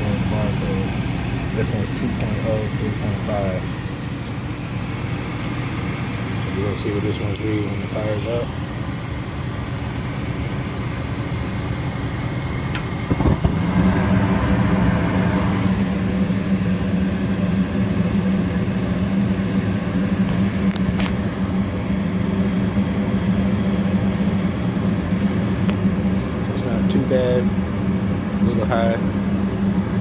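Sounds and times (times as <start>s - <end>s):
furnace burners humming: 0.0s - 30.0s
furnace inducer motor humming: 0.0s - 30.0s
furnace ignition click: 12.6s - 14.5s.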